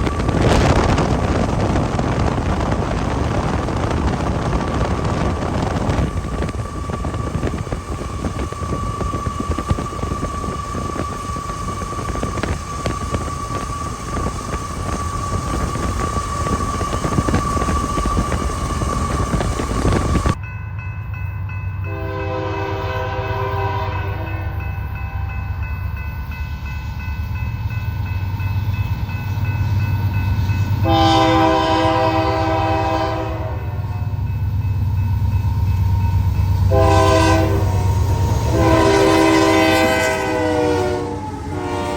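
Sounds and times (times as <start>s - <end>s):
locomotive air horn blasts: 21.9s - 25.3s, 30.8s - 34.0s, 36.7s - 41.9s.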